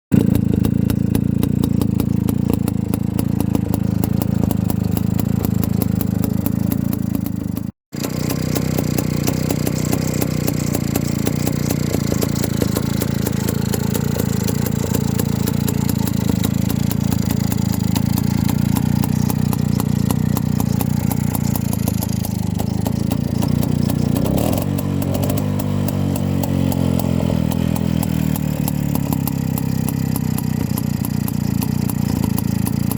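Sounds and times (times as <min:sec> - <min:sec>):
two-stroke motorcycle engine: 0:00.1 - 0:32.9.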